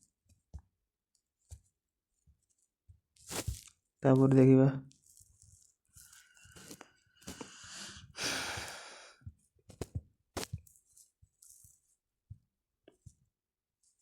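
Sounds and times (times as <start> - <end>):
person sighing: 7.4 - 9.2.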